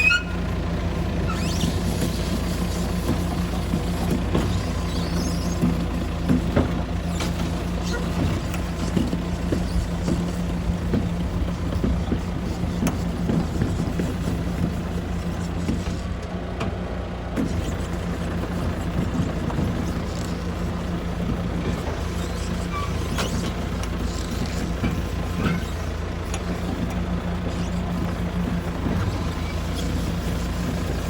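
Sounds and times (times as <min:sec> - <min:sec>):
bulldozer diesel engine running: 0:00.0 - 0:31.0.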